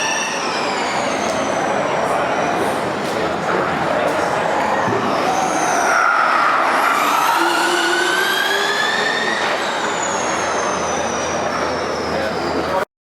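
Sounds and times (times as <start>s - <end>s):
electric race car whining: 4.8s - 12.4s.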